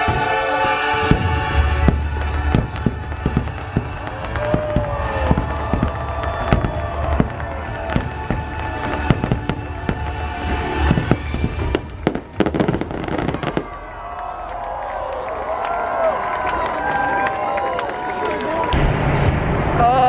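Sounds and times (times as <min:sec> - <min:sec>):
loud show music: 0:00.0 - 0:13.6
fireworks bangs and cracks: 0:00.0 - 0:15.1.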